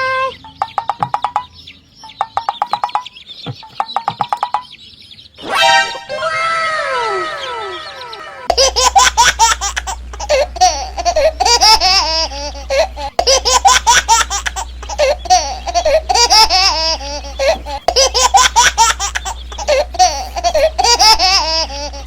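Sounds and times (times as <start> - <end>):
cartoon whistles sliding down: 5.4 - 8.5
baby giggling and laughing: 5.4 - 22.0
low steady hum: 5.4 - 22.0.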